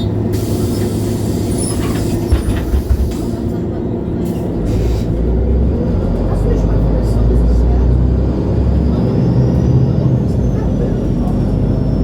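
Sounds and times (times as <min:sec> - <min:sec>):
bus engine drone: 0:00.0 - 0:12.0.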